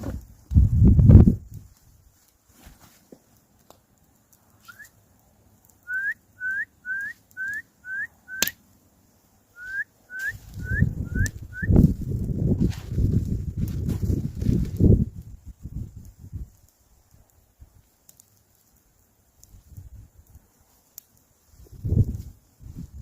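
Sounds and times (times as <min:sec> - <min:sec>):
low rustling and crunching: 0:00.0 - 0:23.0
short rising whistled notes: 0:04.6 - 0:05.0, 0:09.6 - 0:11.8.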